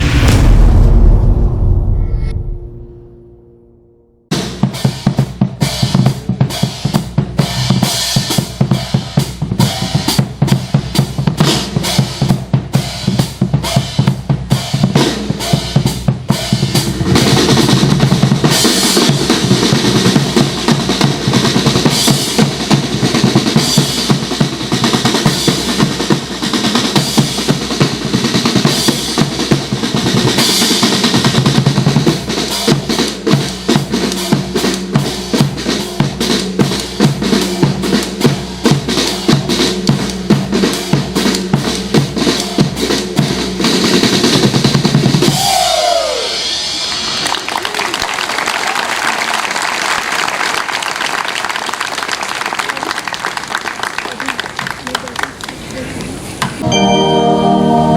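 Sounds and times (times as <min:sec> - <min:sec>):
snare and bass drum beat: 0:04.3 - 0:45.5.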